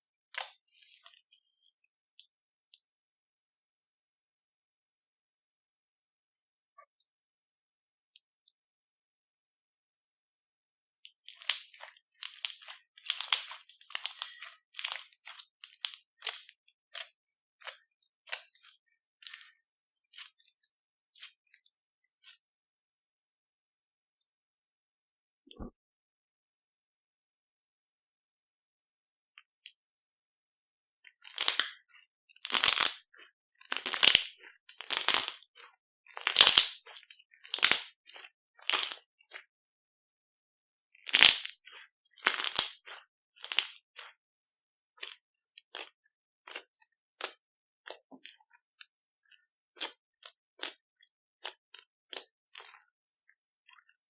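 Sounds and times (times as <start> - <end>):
crunchy slime crackling and popping: 11.3 - 18.6, 31.2 - 31.8, 32.4 - 39.1, 41.0 - 44.2, 49.8 - 50.8.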